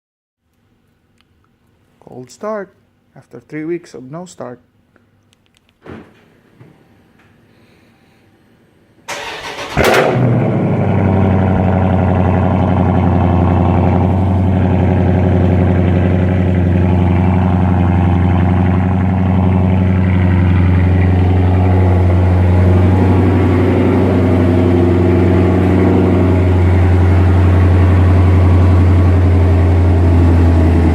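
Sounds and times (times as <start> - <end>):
loud car engine idling: 9.1 - 30.9.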